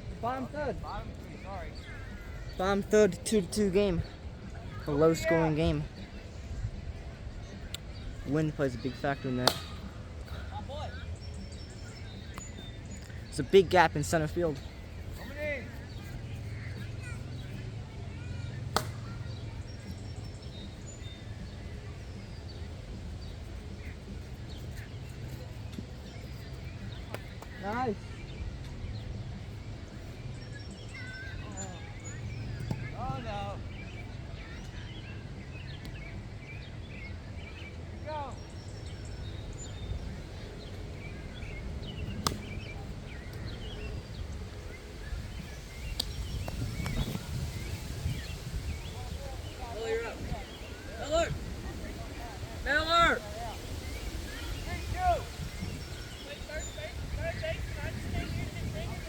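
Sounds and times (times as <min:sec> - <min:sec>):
birds chirping: 0:00.0 - 0:59.0
wind noise on microphone: 0:38.4 - 0:59.0.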